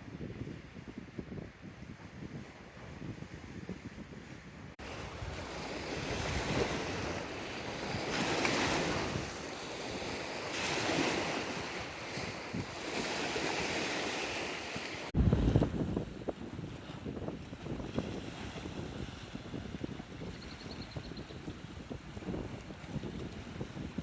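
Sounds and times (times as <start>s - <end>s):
wind on microphone: 0.0s - 24.0s
waves washing in and out: 4.8s - 20.3s.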